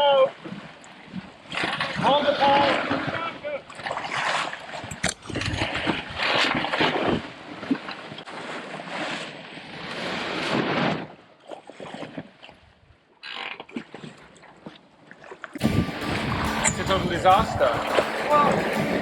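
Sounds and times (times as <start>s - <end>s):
water rushing past hull: 0.3s - 11.0s, 15.6s - 19.0s
wind gusting across microphone: 15.6s - 19.0s.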